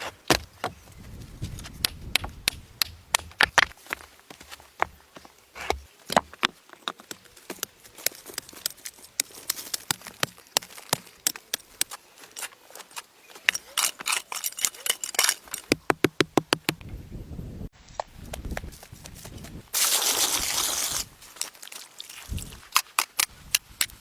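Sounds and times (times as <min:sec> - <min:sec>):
sharp knocks and clicks: 0:15.7 - 0:16.9.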